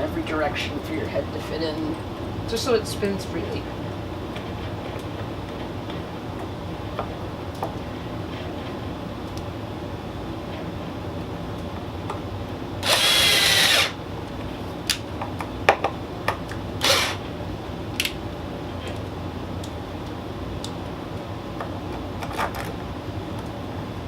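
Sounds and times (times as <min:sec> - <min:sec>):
steady background noise: 0:00.0 - 0:24.0
power drill whine: 0:12.8 - 0:14.0, 0:16.8 - 0:17.3.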